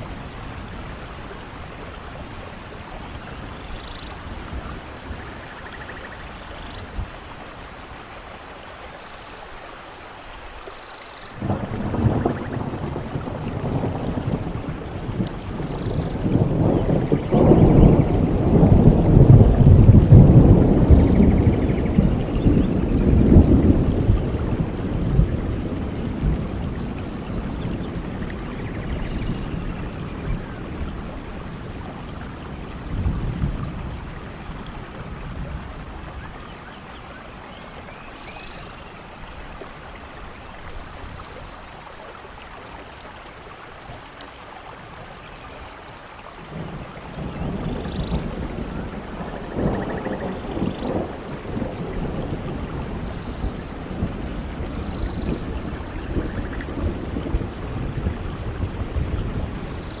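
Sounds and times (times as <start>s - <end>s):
steady rain: 0.0s - 60.0s
rolling thunder: 11.4s - 36.6s, 46.4s - 60.0s.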